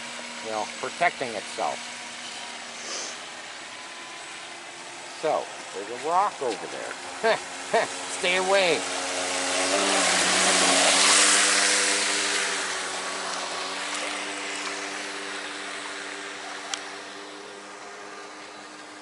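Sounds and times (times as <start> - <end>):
electric boat motor whine: 0.0 - 19.0
hull hissing through water: 1.4 - 5.1, 7.0 - 18.3.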